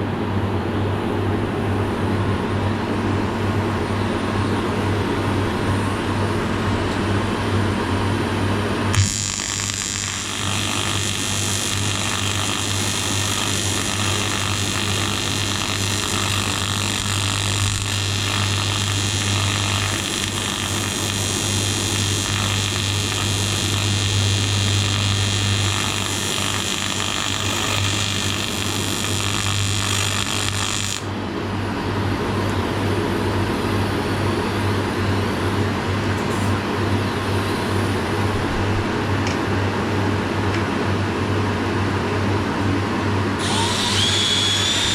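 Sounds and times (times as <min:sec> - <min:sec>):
low steady machine noise: 0:00.0 - 0:44.9
welder buzzing with hiss: 0:08.4 - 0:31.1, 0:43.4 - 0:44.9.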